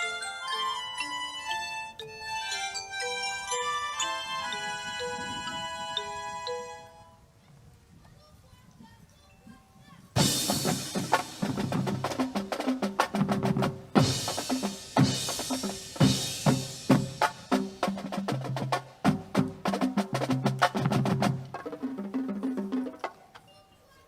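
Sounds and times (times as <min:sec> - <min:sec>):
rapid drum strikes: 0:10.2 - 0:23.2.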